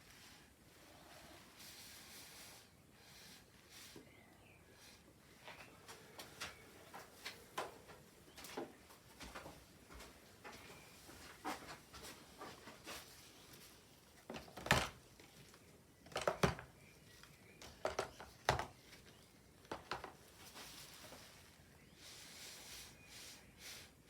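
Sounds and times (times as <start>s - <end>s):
small objects clattering on hard surface: 17.6s - 18.8s.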